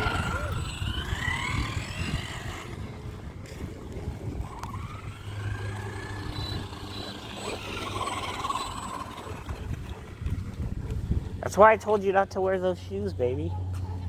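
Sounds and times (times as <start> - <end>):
electric motor whining: 0.0 - 11.2
low rumble: 0.0 - 11.4.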